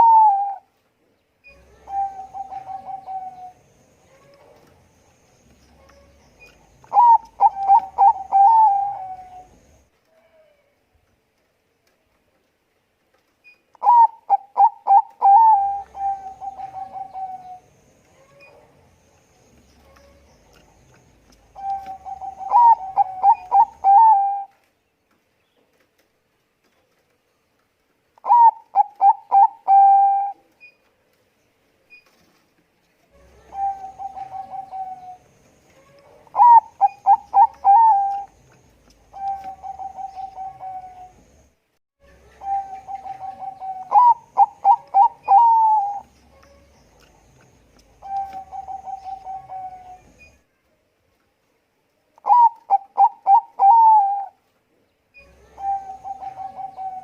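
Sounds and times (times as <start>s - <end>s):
dove cooing: 0.0s - 0.7s, 1.5s - 4.7s, 5.8s - 9.7s, 13.8s - 18.6s, 21.4s - 24.6s, 28.2s - 30.4s, 33.2s - 41.4s, 42.2s - 50.2s, 52.2s - 54.4s, 55.2s - 57.0s.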